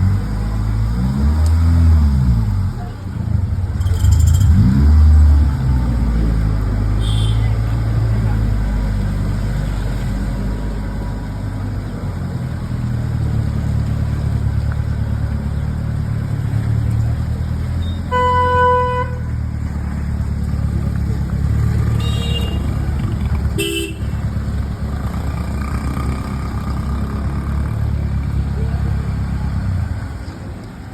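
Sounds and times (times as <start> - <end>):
car engine rumble: 0.0 - 30.9
street traffic: 0.0 - 30.9
vehicle horn blast: 7.0 - 7.6, 18.1 - 19.4, 21.9 - 22.8, 23.6 - 24.2.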